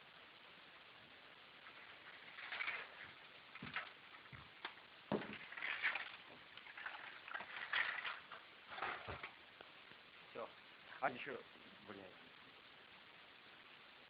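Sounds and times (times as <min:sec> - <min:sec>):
dull thumps: 0:03.0 - 0:05.6.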